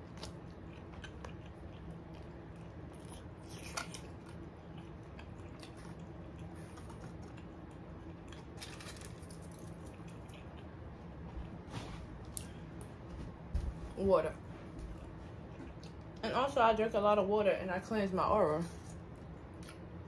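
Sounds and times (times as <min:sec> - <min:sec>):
person chewing food: 0:00.0 - 0:11.6, 0:14.8 - 0:16.2
faint steady hum: 0:00.0 - 0:20.0.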